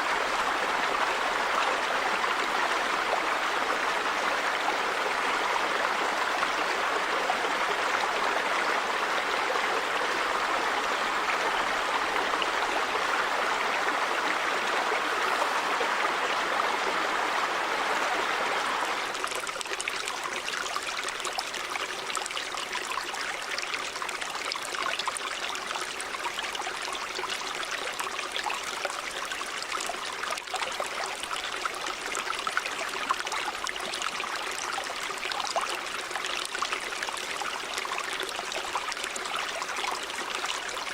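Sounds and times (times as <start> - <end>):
water trickling and dripping: 19.1 - 40.9.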